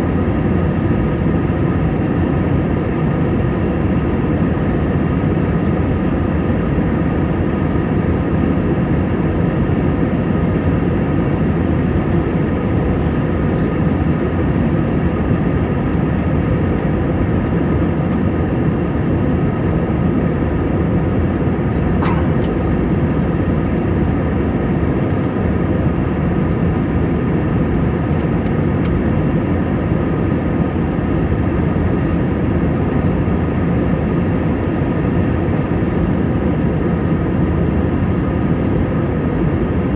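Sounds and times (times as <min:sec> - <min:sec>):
airplane engine and airflow rumble: 0:00.0 - 0:39.9
faint whining tones: 0:20.6 - 0:24.0.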